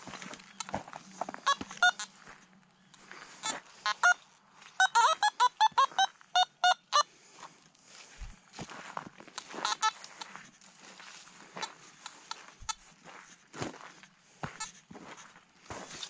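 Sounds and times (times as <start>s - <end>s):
bird calling in ringing notes: 0.0s - 7.1s, 9.4s - 10.3s.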